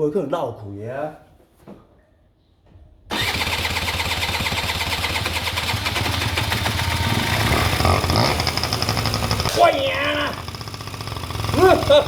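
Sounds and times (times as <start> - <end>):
scooter engine running: 3.1 - 12.0.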